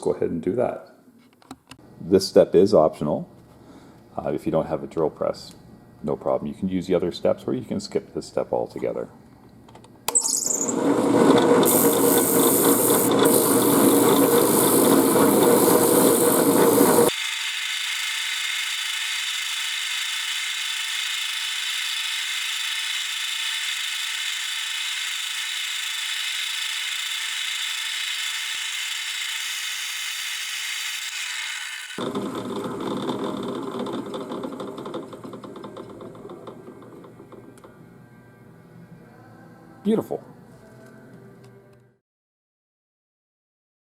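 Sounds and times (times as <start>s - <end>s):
drill press sanding wooden wheel: 10.5s - 37.4s.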